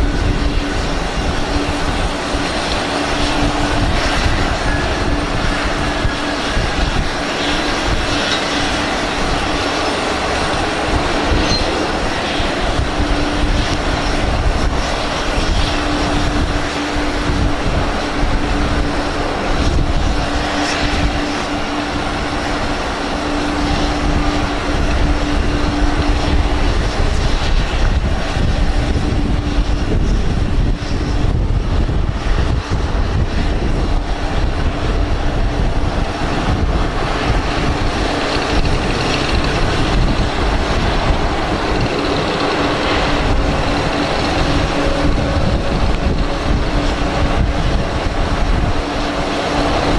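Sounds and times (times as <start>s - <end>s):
jet airliner and tug hum: 0.0s - 49.9s
wind rumble on microphone: 0.0s - 49.9s.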